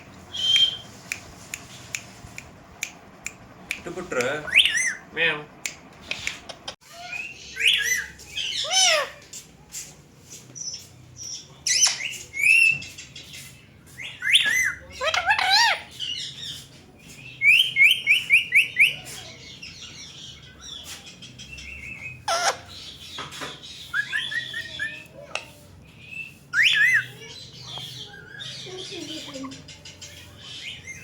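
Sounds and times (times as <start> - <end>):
parakeets squawking: 4.3 - 5.4, 6.9 - 9.3, 11.6 - 16.8, 17.4 - 31.0.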